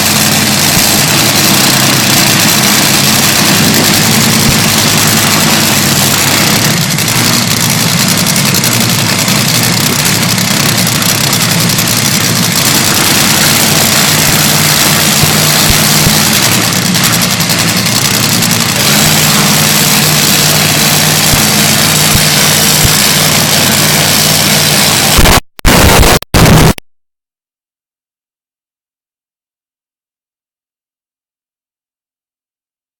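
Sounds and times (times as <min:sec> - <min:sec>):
dragster engine idling: 0:00.0 - 0:25.2.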